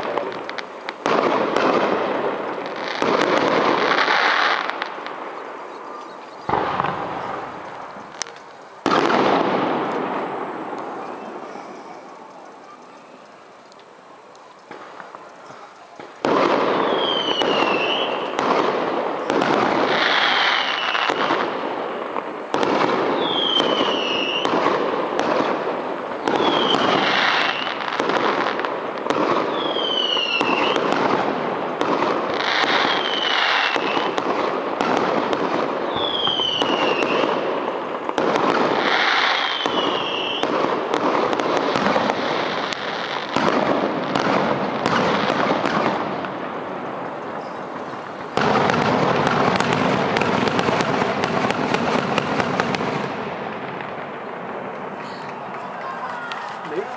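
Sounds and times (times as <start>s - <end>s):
fireworks falling whistles: 0.0s - 56.9s
fireworks launching and bursting: 0.0s - 56.9s.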